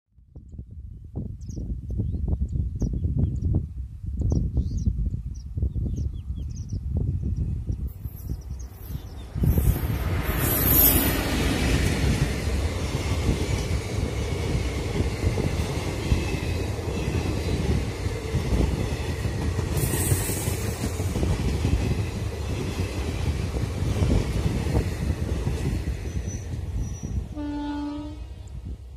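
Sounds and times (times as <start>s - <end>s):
train wheels on rails: 7.9s - 27.4s.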